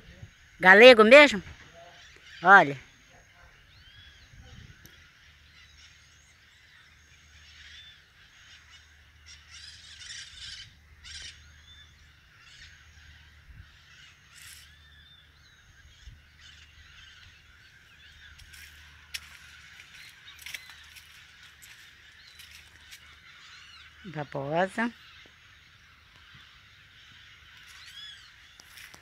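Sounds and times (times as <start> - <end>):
faint bird chirps: 0.0 - 29.0.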